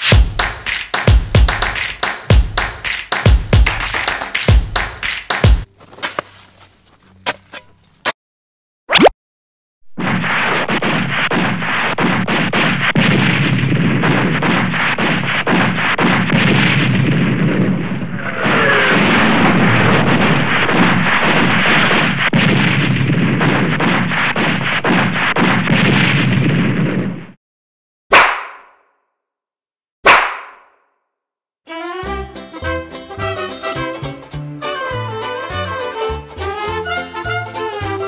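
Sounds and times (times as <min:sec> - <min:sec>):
rapid gunshots and bangs: 0:10.6 - 0:17.5.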